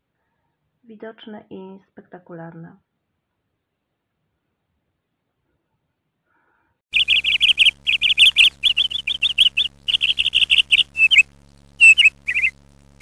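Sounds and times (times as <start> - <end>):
faint steady hum: 6.9 - 13.0
small birds chirping: 6.9 - 13.0.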